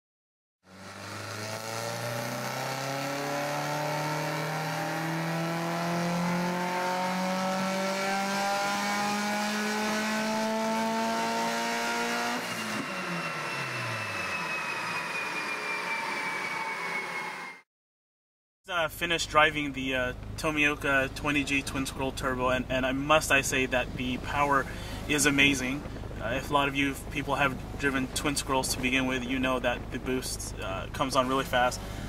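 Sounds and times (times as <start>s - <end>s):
engine winding down whine: 0.6s - 17.7s, 18.9s - 32.0s
turbocharged engine revving: 0.7s - 16.8s.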